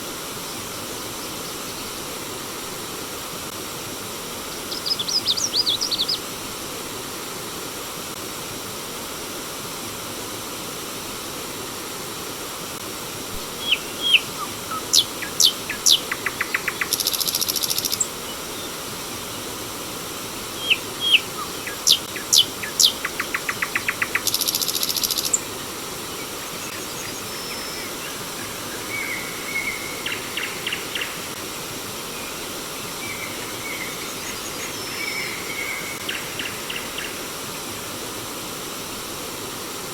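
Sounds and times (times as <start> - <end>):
stream water rushing: 0.0 - 39.9
songbird singing with trill: 4.7 - 6.2, 13.6 - 18.7, 20.6 - 25.5, 26.1 - 31.2.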